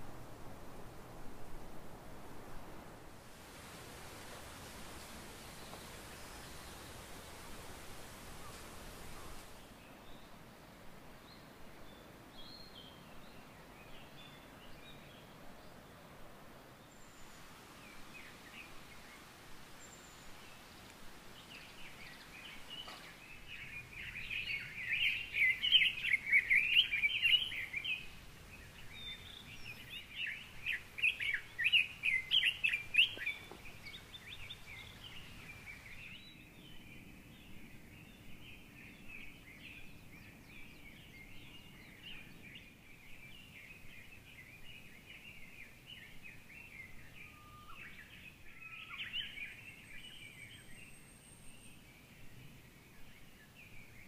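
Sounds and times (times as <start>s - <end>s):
faint bird calls: 45.2s - 51.8s.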